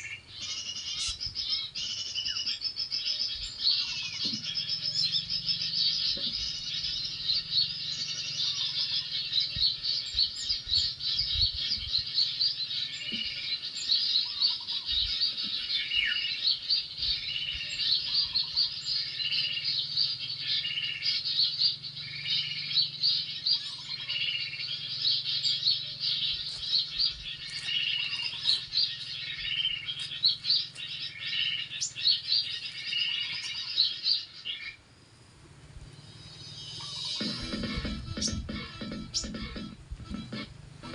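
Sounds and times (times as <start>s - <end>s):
lower bird call: 0.0s - 34.8s, 35.6s - 40.9s
songbirds twittering: 0.0s - 40.9s.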